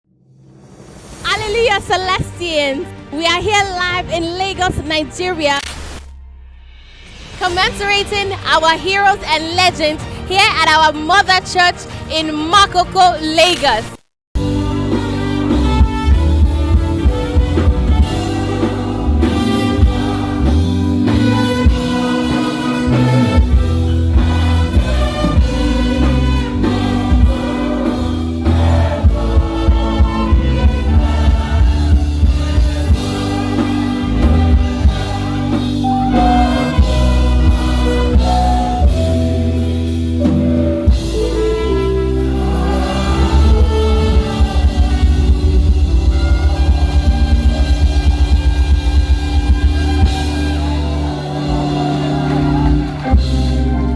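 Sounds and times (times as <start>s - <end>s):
drums: 0.3s - 10.2s, 13.5s - 53.9s
heavy bass: 14.4s - 53.9s
instrumental band music: 14.4s - 53.9s.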